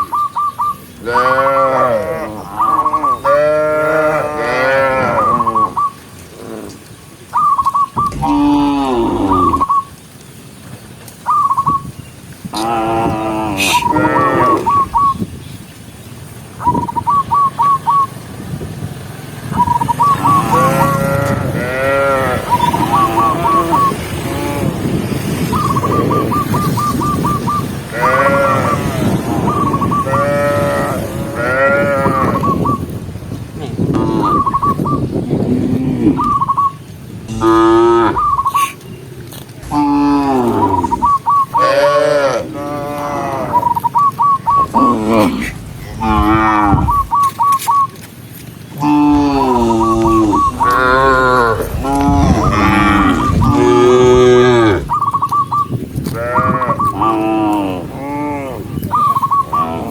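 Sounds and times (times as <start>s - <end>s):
cows mooing: 1.0s - 5.8s, 8.0s - 9.7s, 12.6s - 14.9s, 20.2s - 25.1s, 27.8s - 32.6s, 33.6s - 34.6s, 35.4s - 36.3s, 37.3s - 38.7s, 39.6s - 43.8s, 44.5s - 47.4s, 48.8s - 55.1s, 56.0s - 58.7s, 59.6s - 59.9s
low noise of herd: 1.0s - 7.0s, 8.0s - 9.8s, 12.5s - 15.1s, 20.2s - 25.3s, 27.8s - 36.4s, 37.2s - 47.6s, 48.7s - 55.1s, 56.0s - 59.9s
short high whistled calls: 43.6s - 45.6s, 46.8s - 48.0s.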